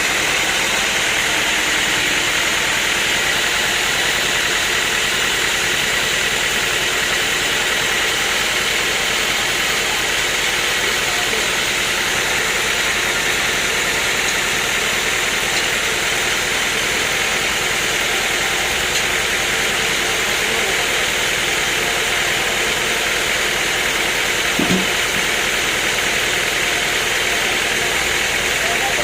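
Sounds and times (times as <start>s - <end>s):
sawmill machinery running: 0.0s - 29.0s
short knock: 24.6s - 25.0s.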